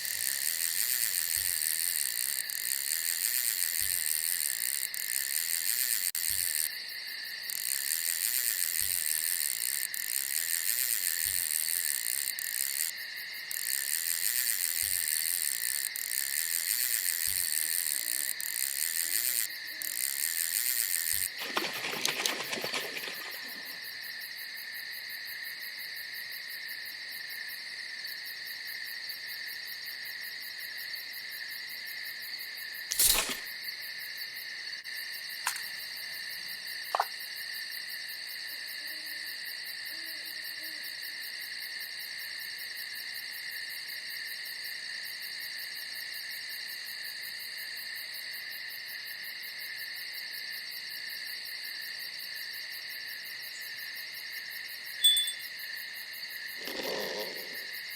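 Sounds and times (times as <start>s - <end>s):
crickets trilling: 0.0s - 57.9s
short sharp clicks: 32.9s - 33.5s, 35.5s - 35.8s.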